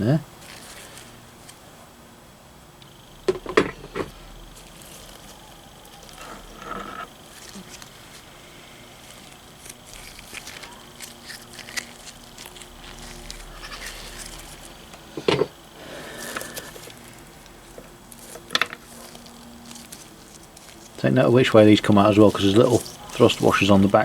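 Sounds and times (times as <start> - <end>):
metal part clunk: 15.2 - 15.6
metal parts clicking and scraping: 16.2 - 21.0.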